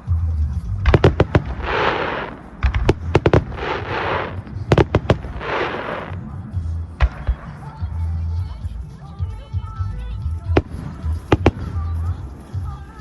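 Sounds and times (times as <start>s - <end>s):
fireworks crackling: 0.0s - 8.8s, 10.4s - 13.0s
fireworks bangs: 0.9s - 6.4s, 7.0s - 8.0s, 10.6s - 12.4s.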